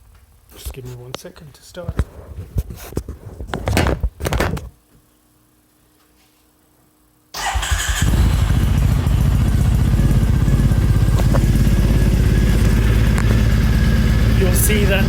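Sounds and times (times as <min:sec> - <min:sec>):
motorcycle engine cranking: 0:07.4 - 0:10.0
motorcycle engine idling: 0:07.4 - 0:15.0.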